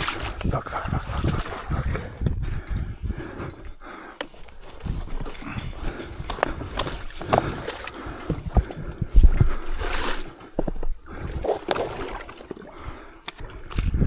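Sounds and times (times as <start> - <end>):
splashing in mud and water: 0.0 - 14.0.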